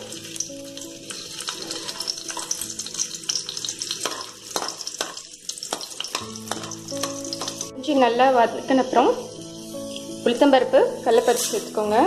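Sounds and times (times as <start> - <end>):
ginger sizzling in hot oil: 0.0 - 12.0
metal spoon knocking against pan: 4.0 - 7.6.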